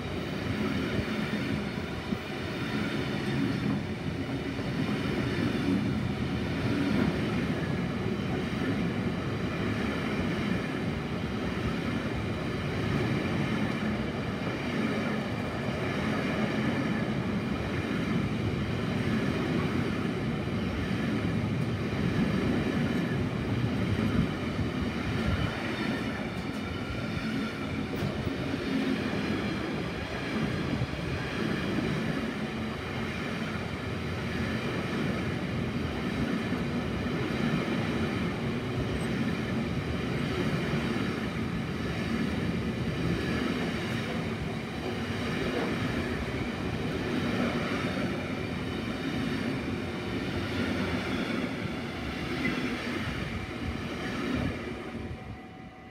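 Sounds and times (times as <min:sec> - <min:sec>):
freight wagons rumbling on rails: 0:00.0 - 0:55.5.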